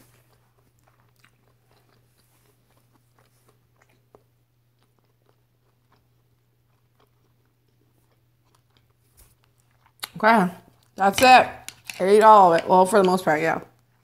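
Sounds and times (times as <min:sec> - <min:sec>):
soft closed-mouth chewing: 0:00.0 - 0:11.0.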